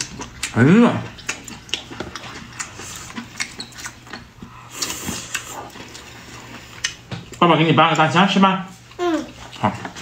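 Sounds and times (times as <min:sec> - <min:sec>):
wet chewing and lip smacks: 0:00.0 - 0:08.0.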